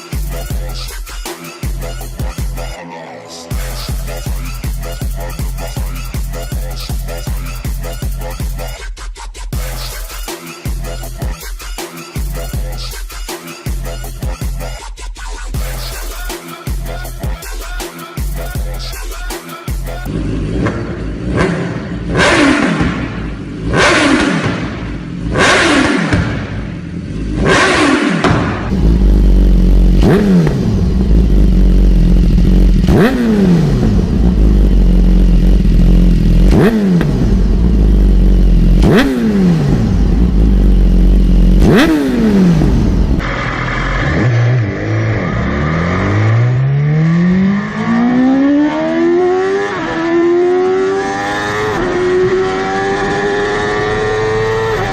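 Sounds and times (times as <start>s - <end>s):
motorcycle engine revving: 19.7s - 54.9s.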